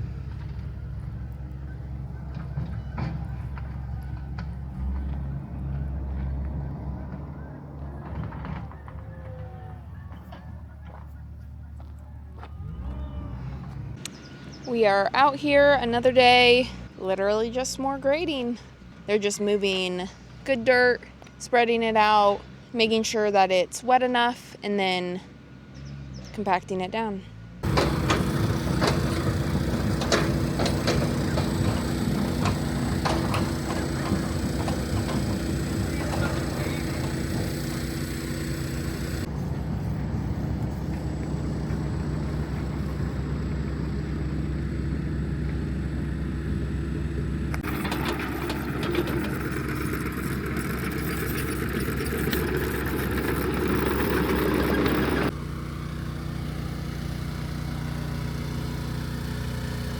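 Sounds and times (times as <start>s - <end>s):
earthmoving machinery engine running: 0.0s - 17.0s, 27.6s - 59.9s
clanks and rattles: 27.6s - 39.3s, 47.5s - 55.4s.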